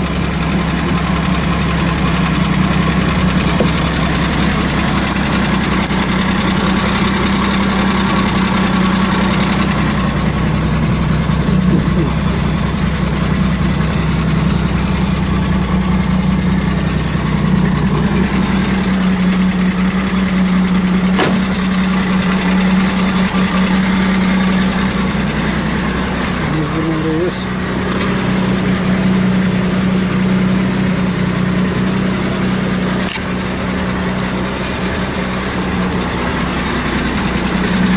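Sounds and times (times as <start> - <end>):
small engine idling: 0.0 - 37.9
sharp click: 33.0 - 33.3.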